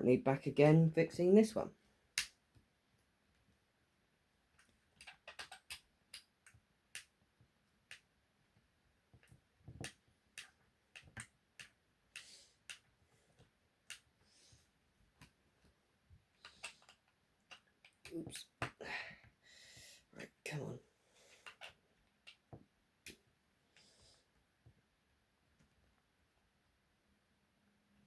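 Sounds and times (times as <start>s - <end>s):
small tools clicking and tapping: 4.6s - 7.2s, 7.8s - 8.1s, 9.1s - 14.2s, 16.4s - 18.8s, 21.4s - 23.2s.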